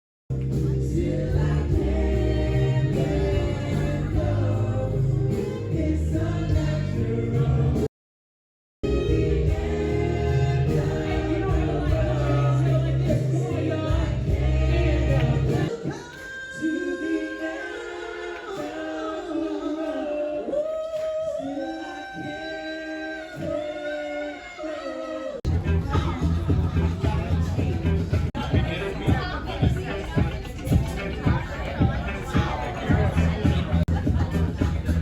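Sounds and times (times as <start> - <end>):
bass-heavy backing music: 0.3 - 7.9, 8.8 - 16.0, 25.4 - 35.0
choir-like singing: 0.4 - 7.9, 8.8 - 35.0.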